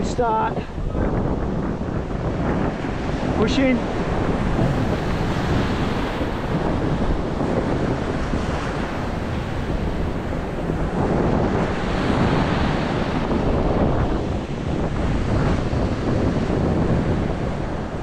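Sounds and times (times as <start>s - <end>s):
sea water splashing and surf: 0.0s - 18.0s
wind buffeting microphone: 0.0s - 18.0s.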